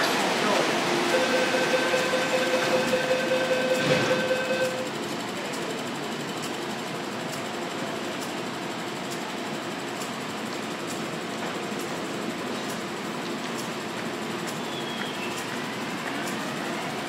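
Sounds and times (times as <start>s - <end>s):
train doors shutting: 0.0s - 5.0s
train hum: 0.0s - 17.0s
door warning pulsing tone: 0.7s - 5.0s.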